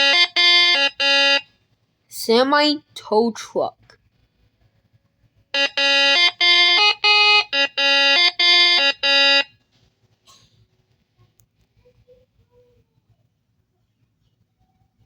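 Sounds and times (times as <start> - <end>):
buzzy multi-tone horn tune: 0.0 - 1.4, 5.6 - 9.5.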